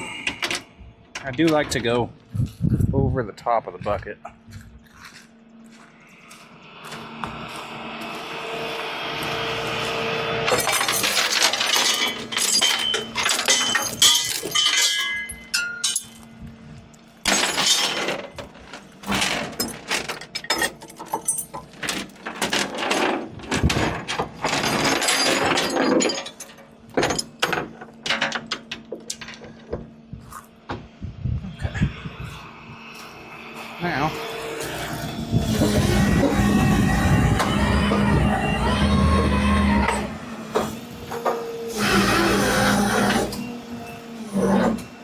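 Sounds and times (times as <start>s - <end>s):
steady hum: 0.0s - 41.9s
steel chains clanking: 10.5s - 16.3s, 17.3s - 29.6s.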